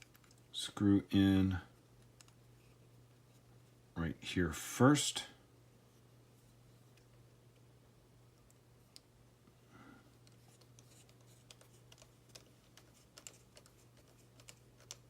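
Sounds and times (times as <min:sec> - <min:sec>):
plastic parts clicking and tapping: 0:00.0 - 0:00.4
low steady hum: 0:00.0 - 0:15.0.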